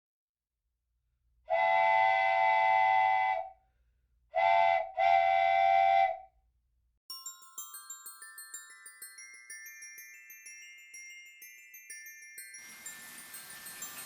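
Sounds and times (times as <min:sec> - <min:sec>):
model train whistle blowing: 0:01.5 - 0:03.6, 0:04.4 - 0:06.3.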